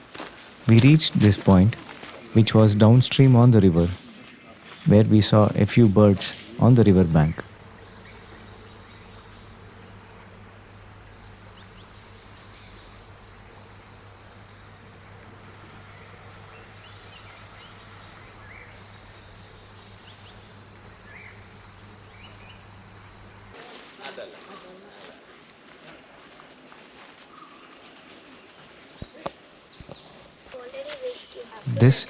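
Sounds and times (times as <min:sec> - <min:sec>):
short insect call: 0:00.6 - 0:05.0, 0:06.2 - 0:23.6
insects droning: 0:00.6 - 0:23.6, 0:31.7 - 0:32.0
faint bird chirps: 0:06.2 - 0:23.6.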